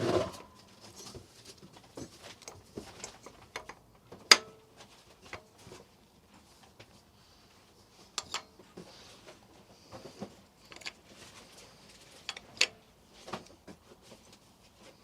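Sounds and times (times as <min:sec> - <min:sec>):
metallic clicks of hand tools: 0:08.2 - 0:08.5, 0:10.6 - 0:11.0, 0:12.2 - 0:12.8.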